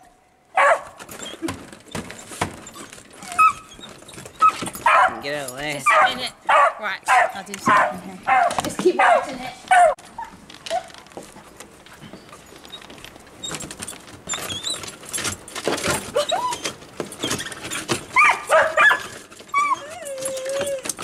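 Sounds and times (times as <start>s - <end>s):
knocking and rustling: 0.6s - 21.0s
dog whining and yipping: 2.6s - 5.2s, 14.3s - 14.9s, 16.1s - 21.0s.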